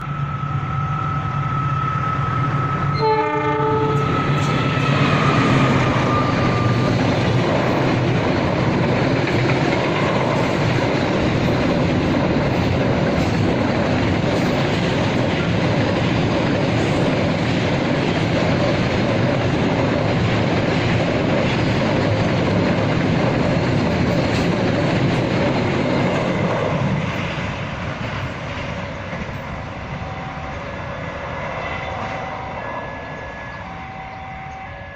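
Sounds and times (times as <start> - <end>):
train horn: 2.9 - 7.0, 30.0 - 34.9
train wheels clattering over rails: 4.1 - 29.8.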